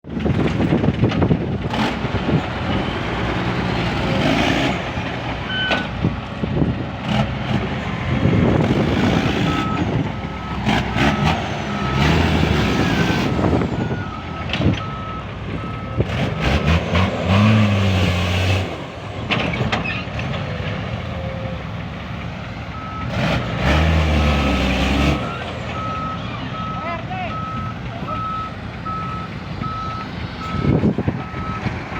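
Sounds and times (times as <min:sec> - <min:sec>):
diesel engine revving: 0:00.1 - 0:31.9.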